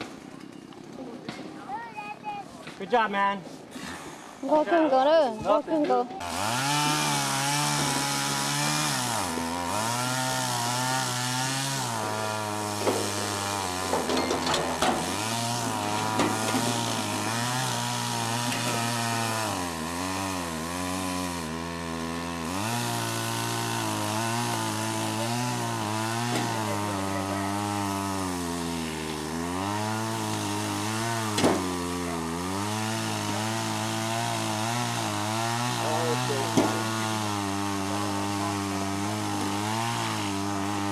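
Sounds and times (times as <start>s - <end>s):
chainsaw engine running: 3.8s - 40.9s.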